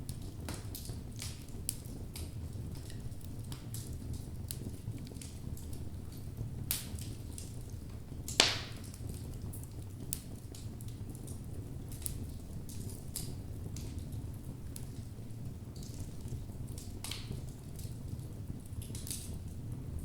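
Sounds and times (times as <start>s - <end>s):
wood logs crackling in fireplace: 0.0s - 20.0s
loud wood pops: 8.4s - 8.8s.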